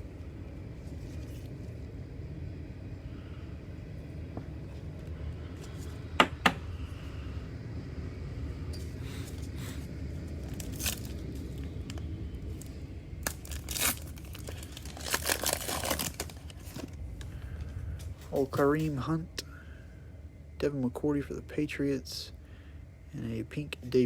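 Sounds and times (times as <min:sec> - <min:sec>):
wrapper tearing and crinkling: 0:10.4 - 0:11.6, 0:13.2 - 0:17.0.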